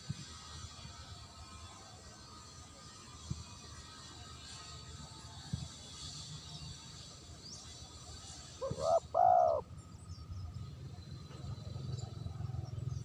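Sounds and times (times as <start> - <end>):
dove cooing: 8.6 - 9.7.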